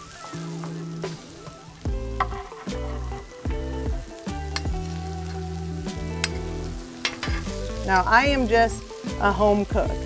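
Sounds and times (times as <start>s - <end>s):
background music: 0.0s - 10.0s
vegetables sizzling on griddle: 0.0s - 10.0s.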